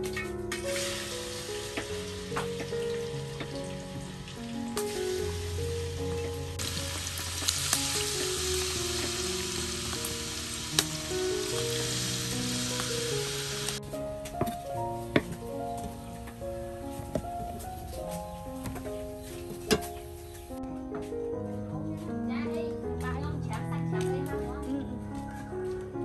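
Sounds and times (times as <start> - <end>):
tofu sizzling in hot oil: 0.6 - 13.8.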